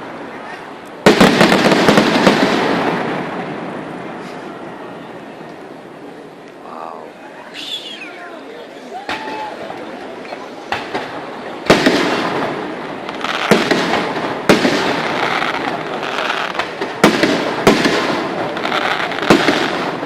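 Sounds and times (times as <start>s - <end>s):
fireworks crackling: 0.0s - 4.8s, 9.0s - 20.0s
fireworks bursting: 1.0s - 4.6s, 9.1s - 20.0s.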